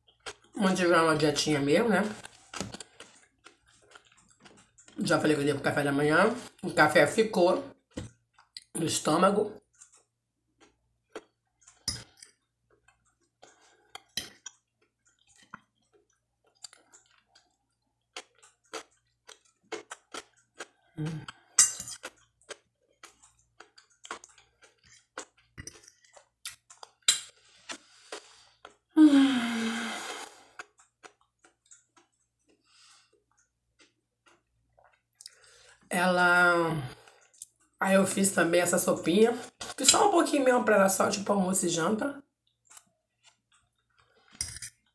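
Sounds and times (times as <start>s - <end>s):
person chewing food: 0.0s - 0.6s, 2.0s - 5.0s, 7.7s - 8.7s, 9.6s - 29.0s, 30.0s - 35.9s, 36.9s - 37.8s, 42.3s - 44.9s
breathy voiced sound: 27.3s - 30.6s.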